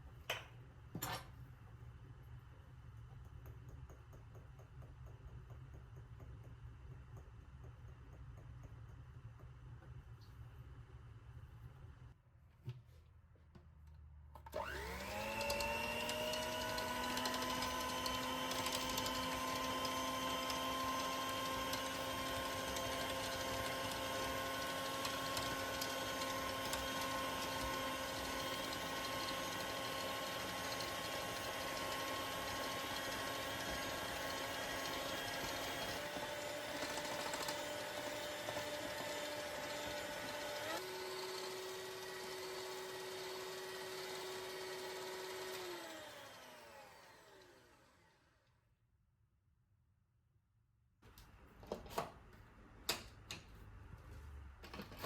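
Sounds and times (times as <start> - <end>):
kitchen mixer motor whining: 14.4 - 48.5.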